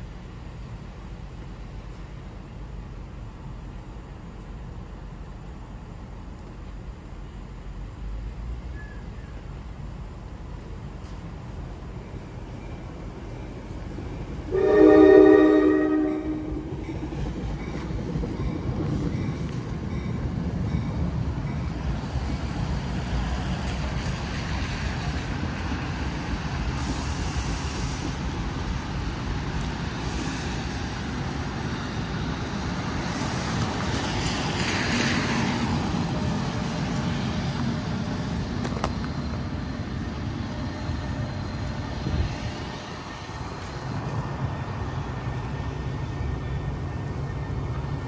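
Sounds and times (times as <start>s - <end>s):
train rumbling over bridge: 0.0s - 48.0s
hiss: 23.3s - 35.7s.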